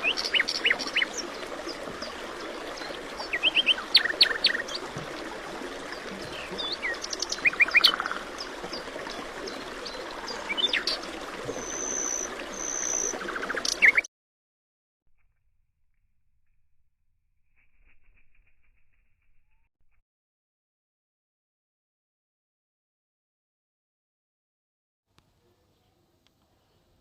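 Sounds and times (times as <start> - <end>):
birds chirping: 0.0 - 14.1.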